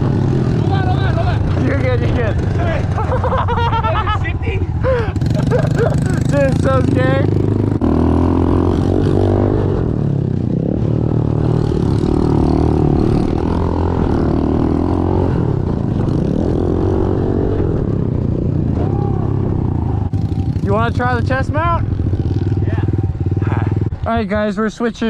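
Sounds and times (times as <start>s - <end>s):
pit bike engine revving: 0.0s - 4.2s, 4.8s - 24.0s.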